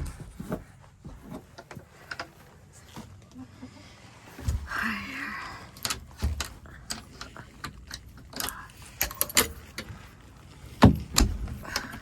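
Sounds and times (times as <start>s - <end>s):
small metal clicks and rattles: 5.7s - 10.0s.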